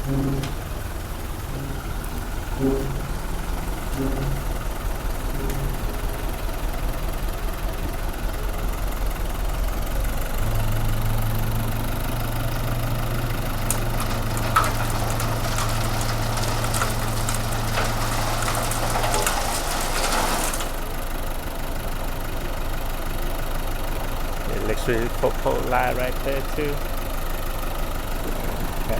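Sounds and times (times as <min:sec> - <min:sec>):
sharp clicking and rattling: 0:00.0 - 0:06.4, 0:13.5 - 0:20.9
low hum: 0:00.0 - 0:07.2
vehicle engine idling: 0:00.0 - 0:28.9.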